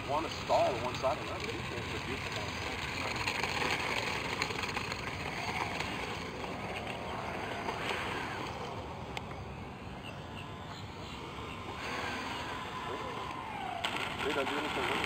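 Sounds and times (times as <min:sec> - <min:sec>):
distant model airplane motor whine: 0:00.0 - 0:15.0.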